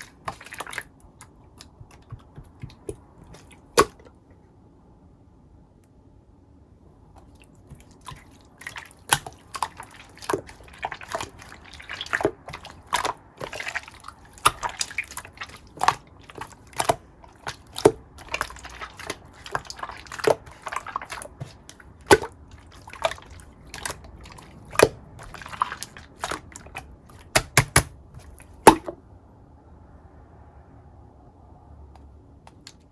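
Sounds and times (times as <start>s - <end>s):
slime squishing: 0.0s - 4.2s, 7.2s - 29.0s.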